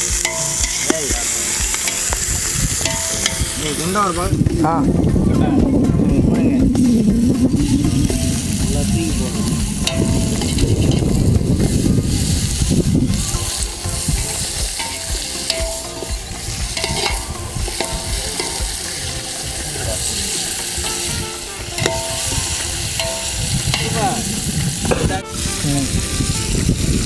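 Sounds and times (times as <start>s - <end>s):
metal ladle scraping pot: 0.0s - 4.1s, 7.8s - 12.3s, 13.1s - 25.6s
food sizzling in oil: 0.0s - 4.3s, 7.6s - 26.7s.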